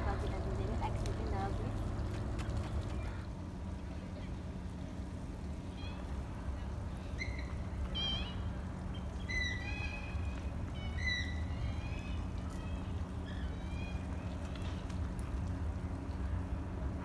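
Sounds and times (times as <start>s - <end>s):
birds whistling calls: 7.0s - 14.2s.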